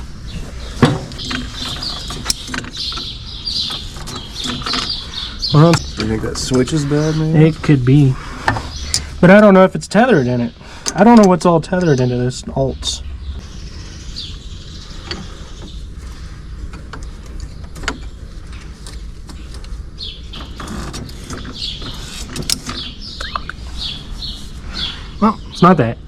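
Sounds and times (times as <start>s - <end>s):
birds chirping: 0.0s - 26.0s
steady low rumble: 3.1s - 20.3s.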